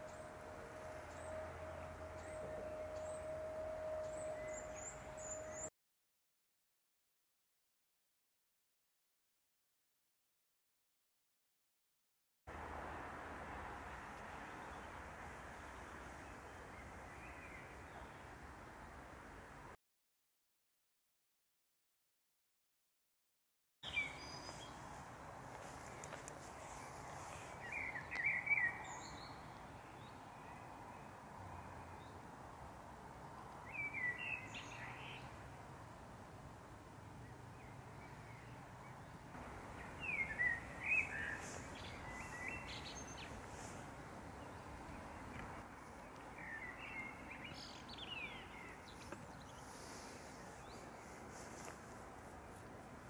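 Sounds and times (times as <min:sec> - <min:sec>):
songbird warbling and chirping: 0:00.0 - 0:05.7, 0:25.9 - 0:30.8, 0:39.8 - 0:43.8, 0:44.4 - 0:51.0.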